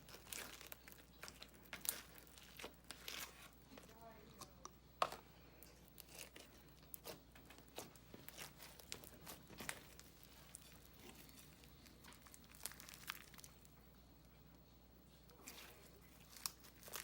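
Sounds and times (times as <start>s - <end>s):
slime squished by hand: 0.0s - 3.6s, 5.6s - 13.7s, 15.3s - 17.0s.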